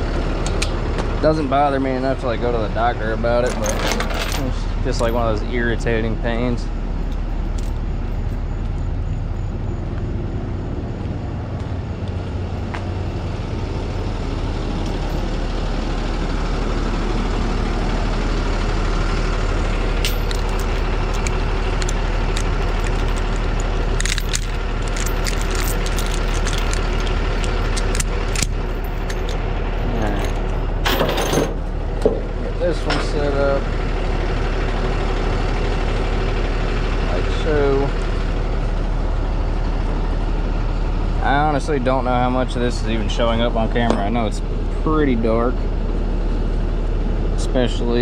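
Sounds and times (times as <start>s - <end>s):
truck engine idling: 0.0s - 48.0s
metal hardware clinking: 20.0s - 33.2s.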